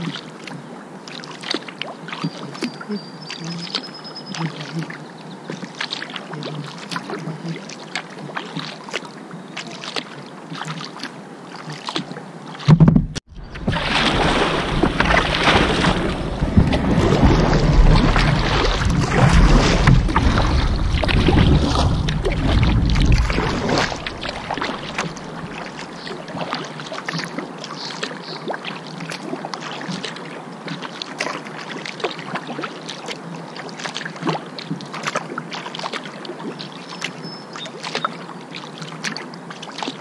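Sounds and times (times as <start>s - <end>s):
paddle splashing water: 0.0s - 40.0s
water dripping and lapping: 0.0s - 40.0s
wind buffeting microphone: 12.8s - 26.0s.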